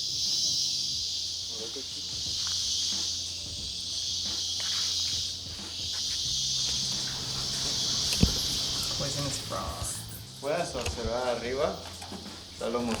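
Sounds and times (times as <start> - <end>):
insect chorus drone: 0.0 - 13.0
faint footsteps: 4.3 - 10.0, 10.8 - 13.0.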